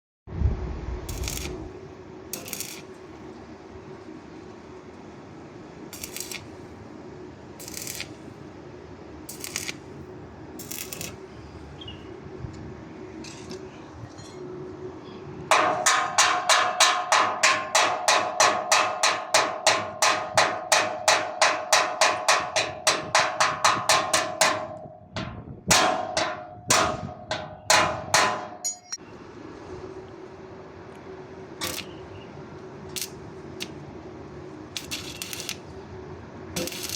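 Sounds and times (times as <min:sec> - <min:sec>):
welding arc pulsing: 0:01.0 - 0:03.0, 0:05.9 - 0:06.6, 0:07.6 - 0:08.3, 0:09.2 - 0:10.0, 0:10.6 - 0:11.2, 0:31.6 - 0:32.1, 0:32.8 - 0:33.9, 0:34.7 - 0:35.8, 0:36.6 - 0:36.9.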